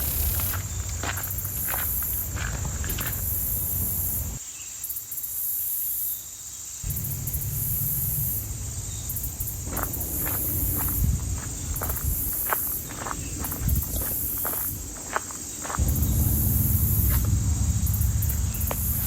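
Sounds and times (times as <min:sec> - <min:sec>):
footsteps: 0:00.0 - 0:04.4, 0:08.4 - 0:19.0
insects chirping: 0:00.0 - 0:19.0
low rumble: 0:06.9 - 0:19.0.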